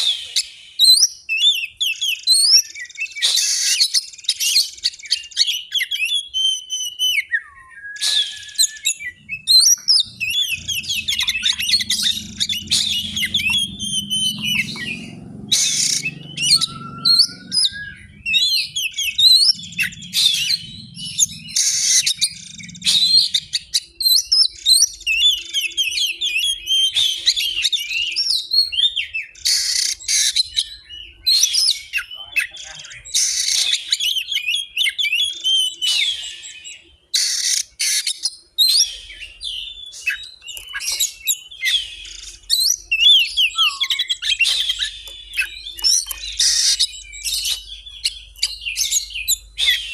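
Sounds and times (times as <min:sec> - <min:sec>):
bird song with chirps and whistles: 0:00.0 - 0:49.9
harsh rasping bird notes: 0:08.1 - 0:23.7.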